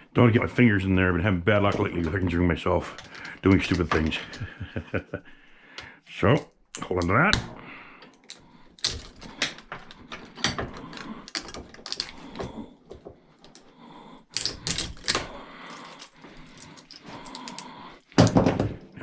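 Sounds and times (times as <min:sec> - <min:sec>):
clicks and metallic knocks of tools: 0:02.9 - 0:04.6, 0:05.7 - 0:13.7, 0:14.3 - 0:18.7.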